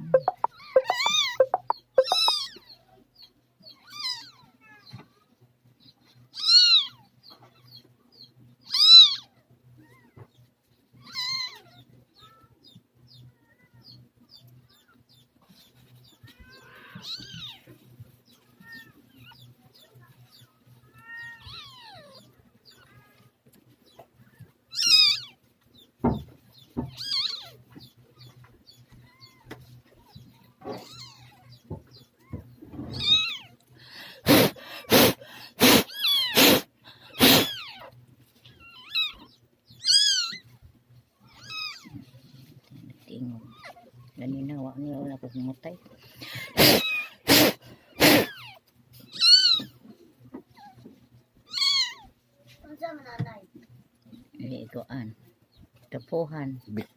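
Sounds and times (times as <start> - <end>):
kitten mewing: 34.2 - 37.8, 46.5 - 48.6.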